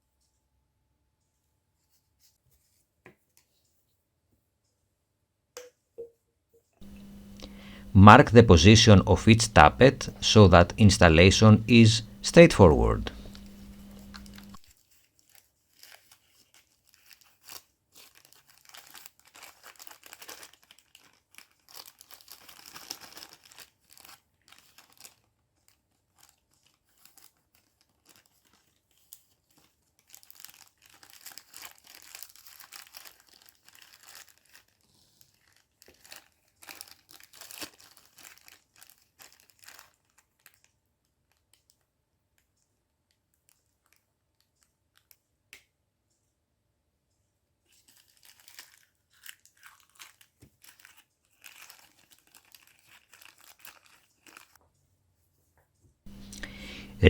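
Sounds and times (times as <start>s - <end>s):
crinkling and rustling: 6.8s - 12.2s, 13.0s - 14.6s, 47.7s - 54.6s.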